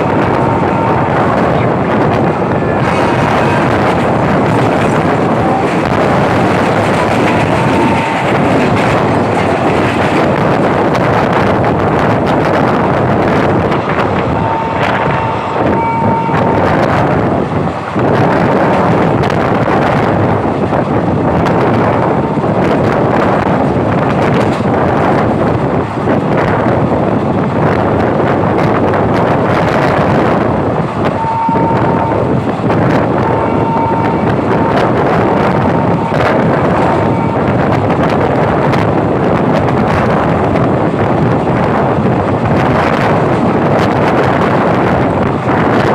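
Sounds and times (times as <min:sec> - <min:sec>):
train carriage rumble: 0:00.0 - 0:45.9
wind buffeting microphone: 0:00.0 - 0:45.9
train wheel clicks: 0:03.1 - 0:15.0.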